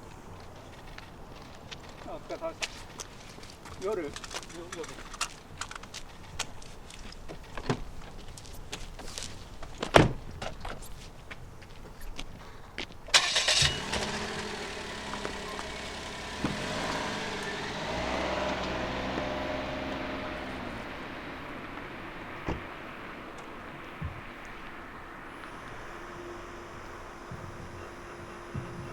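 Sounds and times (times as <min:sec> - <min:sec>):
car engine starting and idling: 0:13.1 - 0:28.9.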